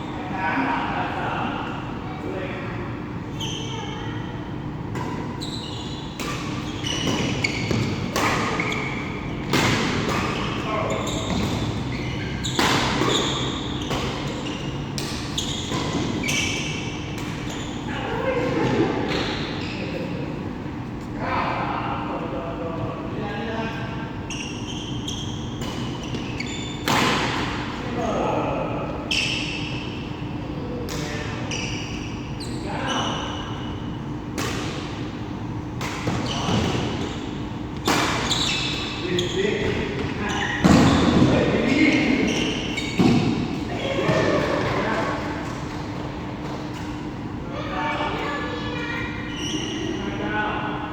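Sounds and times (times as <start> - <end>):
shoe squeaks on court: 5.3 - 17.9, 24.3 - 26.9, 31.5 - 33.4, 36.2 - 45.1, 49.2 - 50.2.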